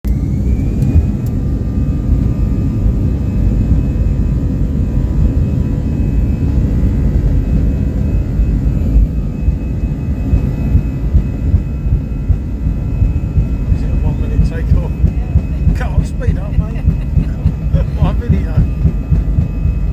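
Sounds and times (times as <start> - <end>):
engine whining tones: 0.0 - 19.9
jet engines rumbling in cabin: 0.0 - 19.9.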